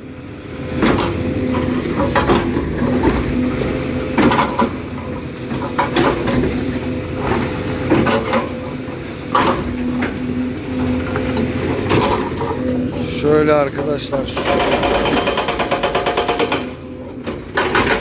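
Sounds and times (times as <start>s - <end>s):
excavator engine running: 0.0s - 18.0s.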